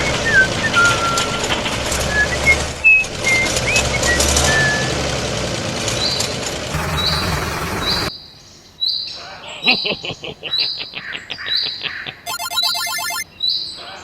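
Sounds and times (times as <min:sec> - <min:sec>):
engine-like running noise: 0:00.0 - 0:08.1
steady high-pitched tone: 0:12.3 - 0:13.2.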